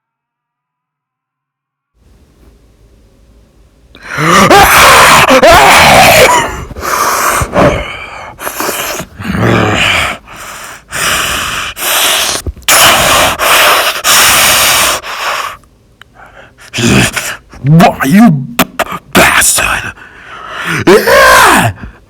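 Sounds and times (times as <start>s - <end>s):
person grunting: 4.0s - 10.3s, 16.7s - 19.9s, 20.6s - 21.9s
person gasping and panting: 4.0s - 17.7s, 19.9s - 22.0s.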